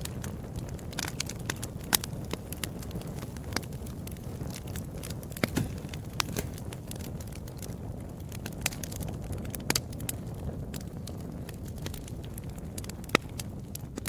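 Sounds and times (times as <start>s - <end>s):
low rumble of flame: 0.0s - 14.0s
sharp pops of fire: 0.0s - 14.0s
wood fire crackling: 0.0s - 14.0s.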